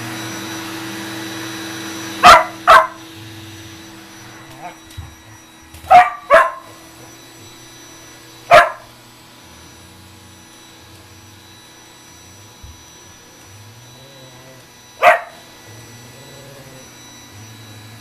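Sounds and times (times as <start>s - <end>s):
dog barking: 2.2s - 3.0s, 5.9s - 6.8s, 8.5s - 8.9s, 15.0s - 15.4s.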